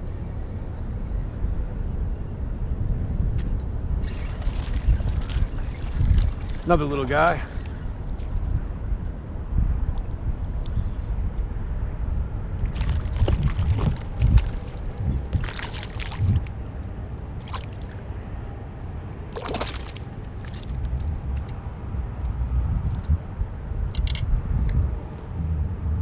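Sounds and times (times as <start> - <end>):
wind rumble on microphone: 0.0 - 26.0
water splashing: 4.2 - 8.3, 12.6 - 16.7, 17.4 - 18.1, 19.3 - 21.0.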